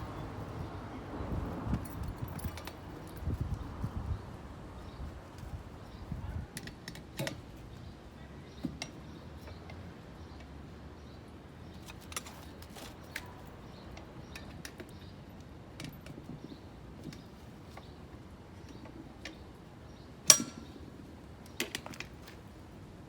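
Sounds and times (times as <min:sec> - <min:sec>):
tools tapping on metal rim: 0:20.2 - 0:20.8.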